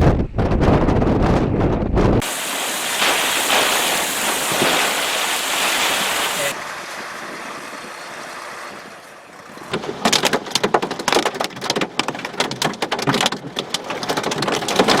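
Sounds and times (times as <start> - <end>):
heavy rain on car roof: 2.2 - 6.6, 10.2 - 15.0.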